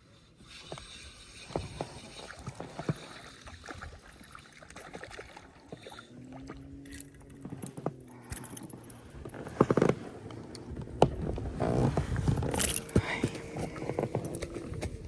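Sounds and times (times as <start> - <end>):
knocks and clicks of gear handled: 6.9 - 15.0.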